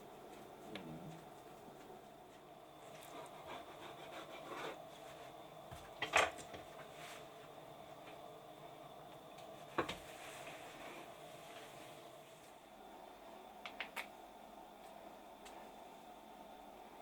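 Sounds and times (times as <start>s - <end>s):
objects rubbing and scraping: 2.9s - 5.4s.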